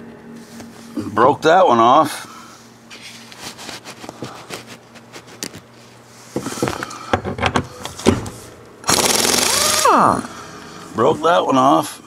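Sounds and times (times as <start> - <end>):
power wrench whining: 8.9 - 10.3.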